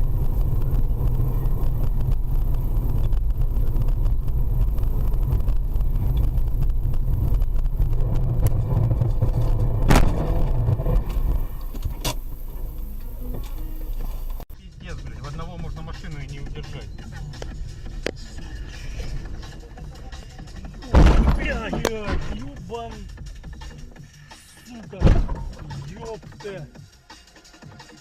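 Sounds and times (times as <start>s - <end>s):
car engine and road rumble: 0.0s - 28.0s
sharp bang: 9.6s - 12.4s, 20.9s - 22.4s.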